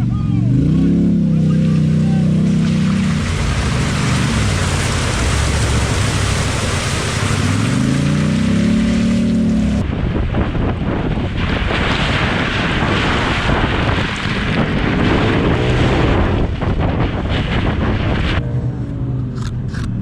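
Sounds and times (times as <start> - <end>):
car engine pulling: 0.0 - 20.0
wind buffeting microphone: 9.6 - 20.0.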